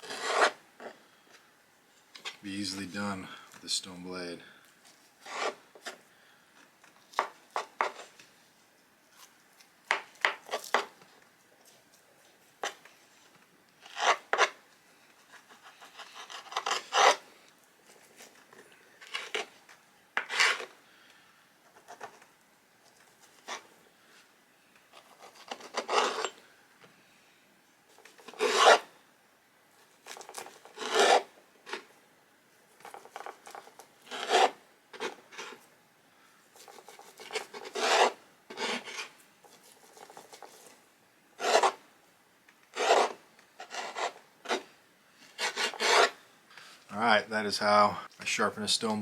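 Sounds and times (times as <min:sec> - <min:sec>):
stone knife scraping strokes: 0:00.0 - 0:00.9, 0:05.2 - 0:05.9, 0:13.8 - 0:14.6, 0:15.3 - 0:17.2, 0:20.2 - 0:20.7, 0:25.0 - 0:26.4, 0:28.0 - 0:28.9, 0:30.1 - 0:31.9, 0:32.8 - 0:35.6, 0:36.6 - 0:40.7, 0:41.4 - 0:41.8, 0:42.7 - 0:44.7, 0:45.3 - 0:46.2.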